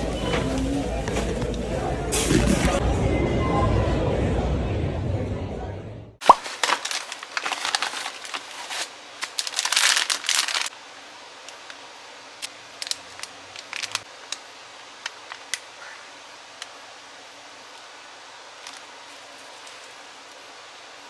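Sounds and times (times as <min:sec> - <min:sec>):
crinkling handling noise: 0:00.0 - 0:02.8, 0:06.2 - 0:10.8, 0:12.4 - 0:15.7, 0:18.5 - 0:21.0.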